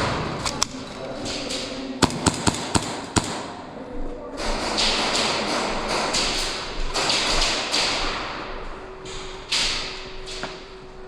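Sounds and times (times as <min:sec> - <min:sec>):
airsoft guns firing bursts: 0:02.0 - 0:03.6.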